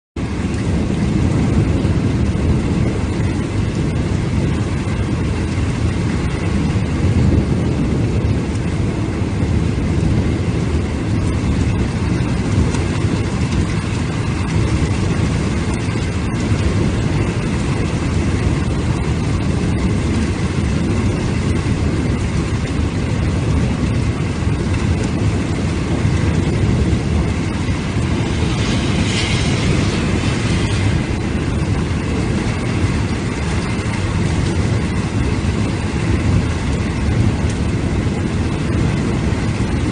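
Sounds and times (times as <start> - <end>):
heavy rain rushing: 0.2 - 39.9.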